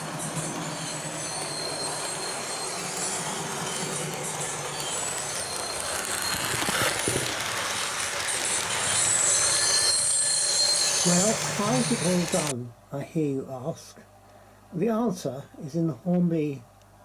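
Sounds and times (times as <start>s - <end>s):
high squealing tones: 0.0s - 12.5s
model train running noise: 0.0s - 12.5s.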